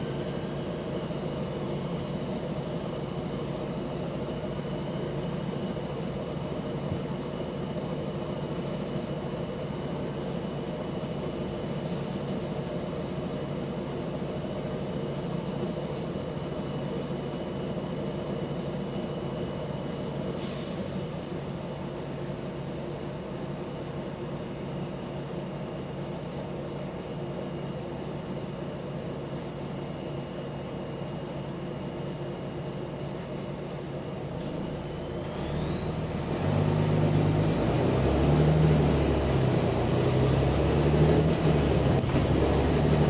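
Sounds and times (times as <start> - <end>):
bus engine running: 0.0 - 43.0.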